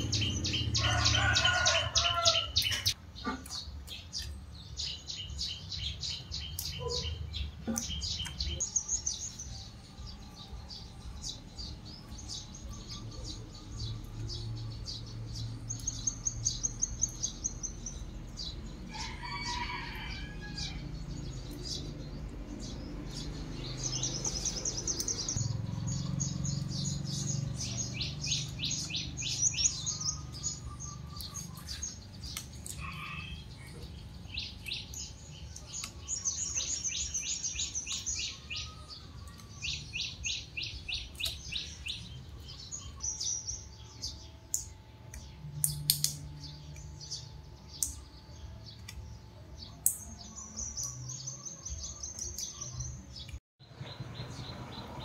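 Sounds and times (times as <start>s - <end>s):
small birds trilling: 0.0s - 55.0s
sharp clicks: 44.5s - 46.9s.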